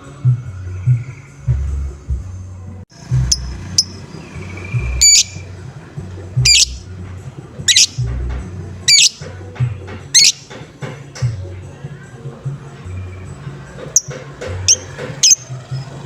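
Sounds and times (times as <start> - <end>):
music with bass beat: 0.2 - 10.5
lovebird chirping: 3.0 - 7.0, 7.6 - 9.3, 10.1 - 10.6, 13.9 - 15.9.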